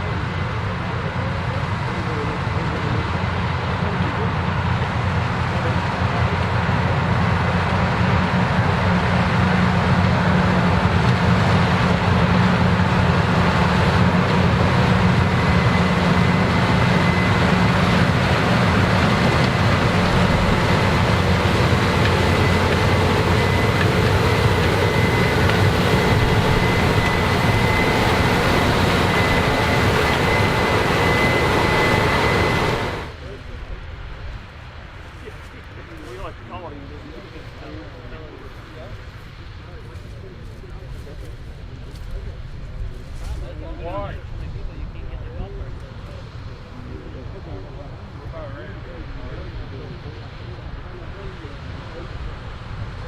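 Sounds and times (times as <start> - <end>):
combine harvester engine drone: 0.0 - 53.0
high whine: 5.5 - 38.6.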